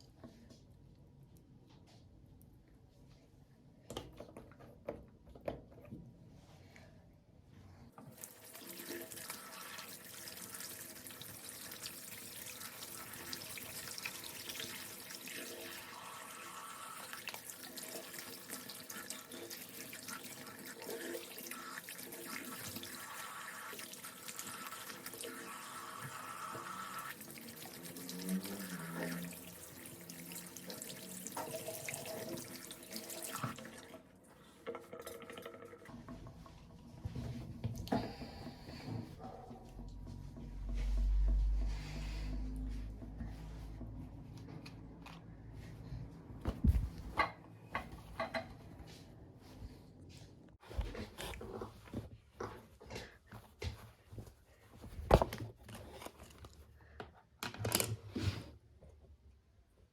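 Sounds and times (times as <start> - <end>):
tap water running into sink: 8.0 - 36.3.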